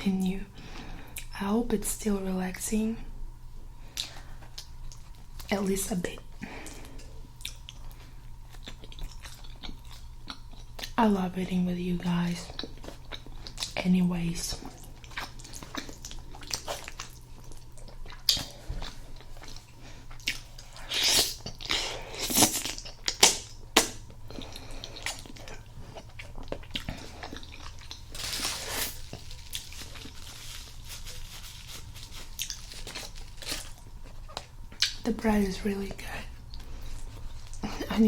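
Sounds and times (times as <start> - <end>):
person chewing food: 6.6 - 11.0, 12.4 - 13.8, 14.5 - 35.0, 36.4 - 38.0.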